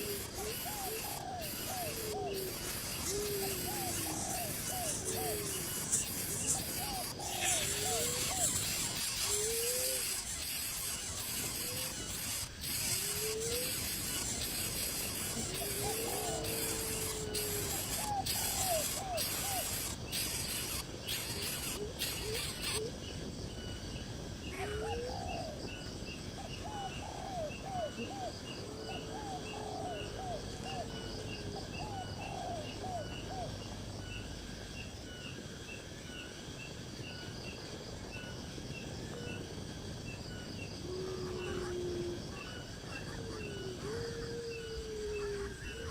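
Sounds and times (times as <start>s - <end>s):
birds chirping: 0.0s - 23.7s.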